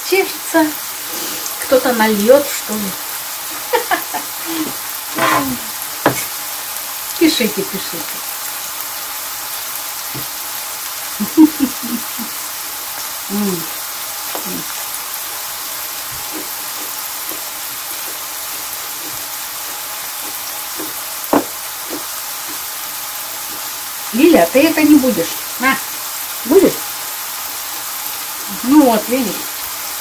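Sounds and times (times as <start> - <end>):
vegetables sizzling in a pan: 0.0 - 30.0
sharp knock: 5.2 - 6.2.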